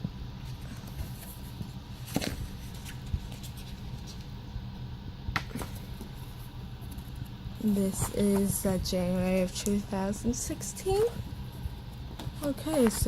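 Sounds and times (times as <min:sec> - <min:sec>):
calendar pages turning: 0:00.5 - 0:04.3, 0:12.0 - 0:13.0.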